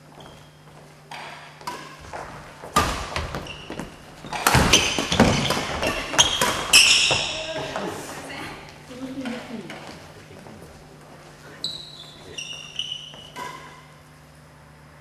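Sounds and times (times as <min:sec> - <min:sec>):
shoe squeaks: 0:00.0 - 0:00.7, 0:03.2 - 0:07.7, 0:11.5 - 0:13.9.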